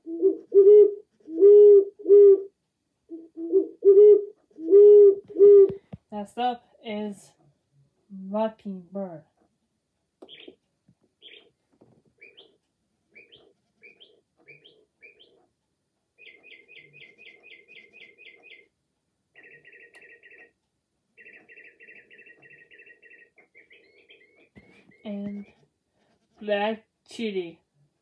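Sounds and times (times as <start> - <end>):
electronic birdsong from clock: 10.3 - 10.6, 11.2 - 11.6, 12.2 - 15.5, 16.2 - 20.6, 21.2 - 25.6.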